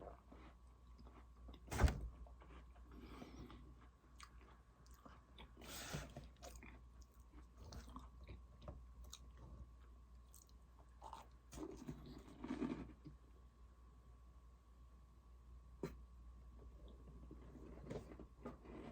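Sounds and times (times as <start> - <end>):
person chewing crunchy cookies: 0.0 - 13.2.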